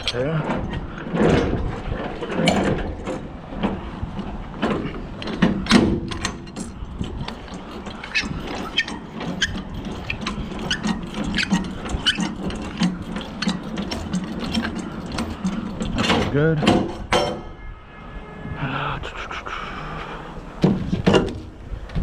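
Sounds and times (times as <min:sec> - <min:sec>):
metallic clicks and knocks: 0:00.0 - 0:17.5.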